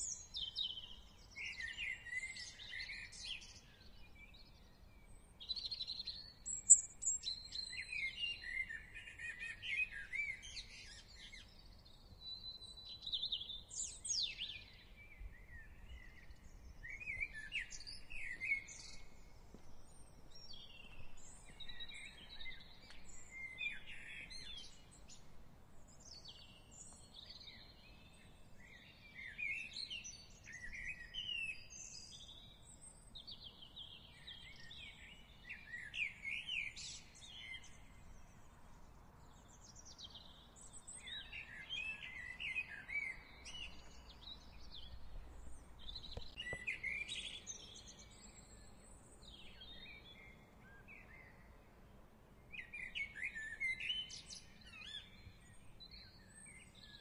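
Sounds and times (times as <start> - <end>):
faint low background noise: 0.0 - 57.0
songbirds singing and chirping: 0.0 - 57.0.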